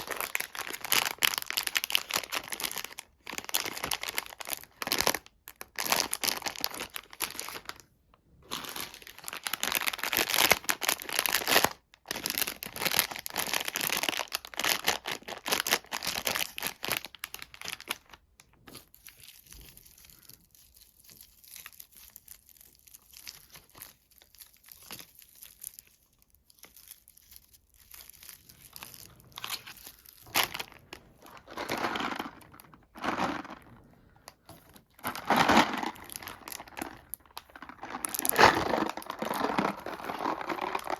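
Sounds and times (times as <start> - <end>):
candy wrapper crinkling and tearing: 0.0 - 40.9.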